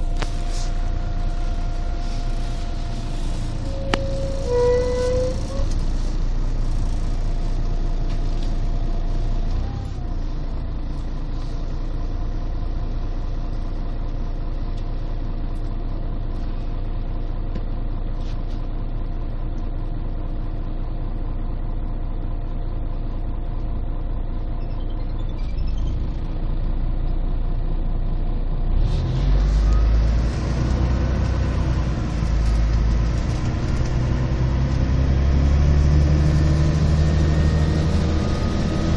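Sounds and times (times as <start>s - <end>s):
gliding whine: 0.0s - 6.0s
bus diesel engine idling: 0.0s - 38.9s.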